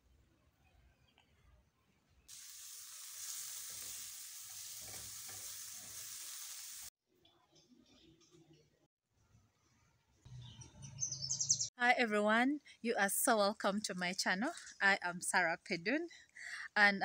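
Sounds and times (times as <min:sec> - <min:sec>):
mushrooms sizzling in a pan: 0:02.3 - 0:06.9.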